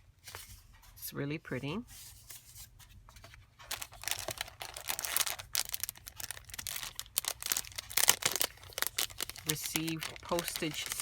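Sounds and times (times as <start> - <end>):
paper and plastic crinkling: 2.2 - 11.0.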